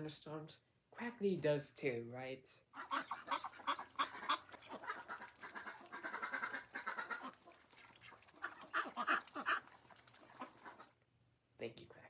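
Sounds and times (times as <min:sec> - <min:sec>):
duck quacking: 0:02.7 - 0:11.0.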